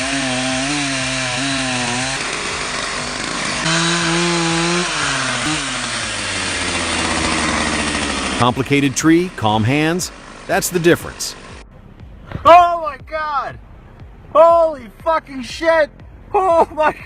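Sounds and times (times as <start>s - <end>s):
chainsaw cutting into tree: 0.0s - 11.6s.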